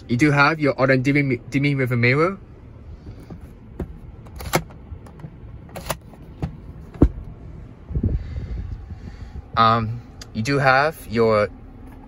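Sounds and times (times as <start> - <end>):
heavy thump: 6.4 - 7.3.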